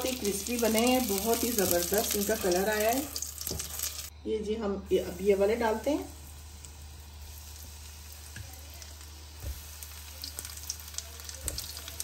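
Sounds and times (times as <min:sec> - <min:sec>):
chicken frying in oil: 0:00.0 - 0:04.1, 0:05.8 - 0:12.0.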